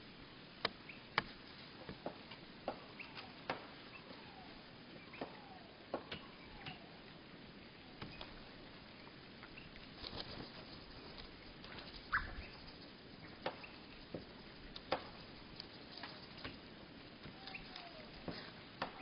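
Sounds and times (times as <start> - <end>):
birds pecking and perching taps: 9.4 - 19.0
low-pitched bird chirp: 11.8 - 14.1, 17.3 - 18.2.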